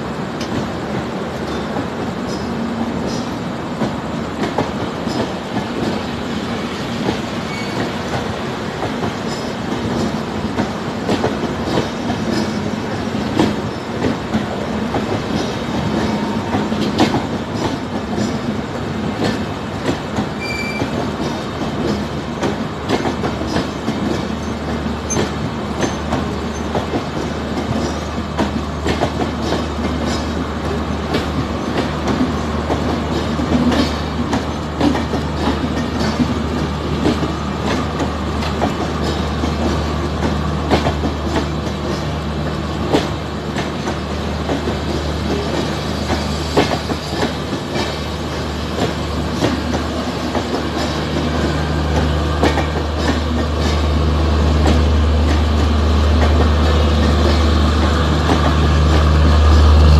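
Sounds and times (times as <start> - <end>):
train wheels clicking over rail joints: 0.1 - 59.9.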